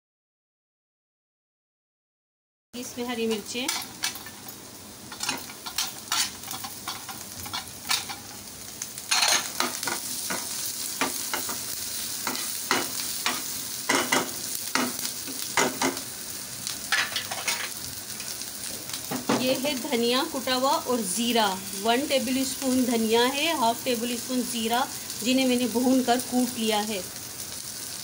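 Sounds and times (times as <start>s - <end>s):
food sizzling in oil: 2.8s - 28.0s
spatula scraping and tapping pan: 5.1s - 8.4s, 16.9s - 17.8s.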